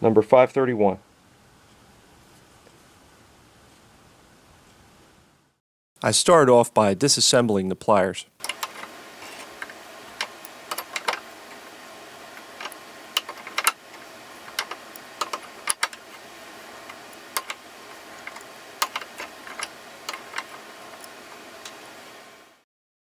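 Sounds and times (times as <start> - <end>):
metallic clicks of hand tools: 8.4 - 11.7, 12.4 - 21.9.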